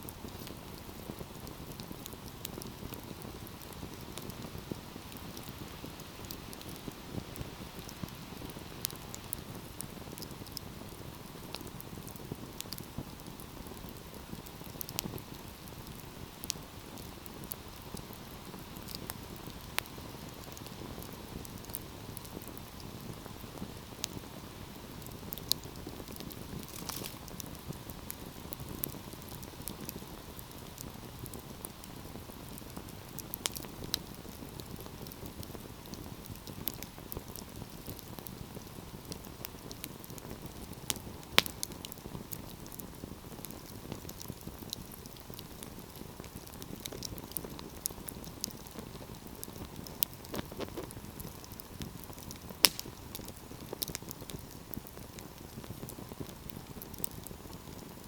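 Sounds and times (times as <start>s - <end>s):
fire crackles and sharp pops: 0.0s - 58.0s
fire hissing: 0.1s - 58.0s.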